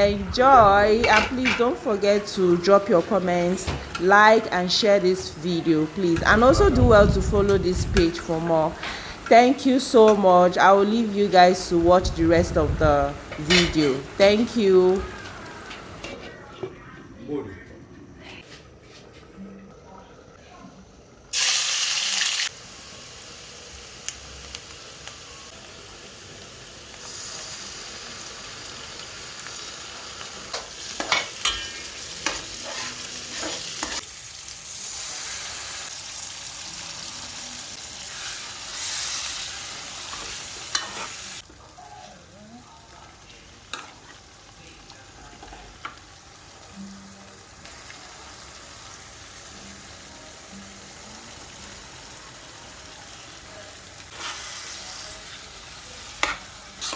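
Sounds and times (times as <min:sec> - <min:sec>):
food sizzling in hot oil: 0:21.3 - 0:41.5, 0:43.3 - 0:56.9
spoon scraping against pan: 0:30.5 - 0:34.0, 0:40.1 - 0:41.4, 0:56.2 - 0:56.9.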